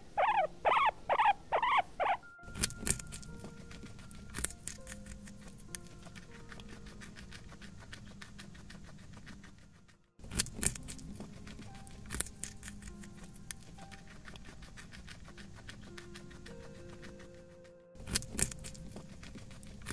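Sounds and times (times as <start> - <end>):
faint background music: 0.0 - 19.9
guinea pig crunching pellets: 0.2 - 19.9.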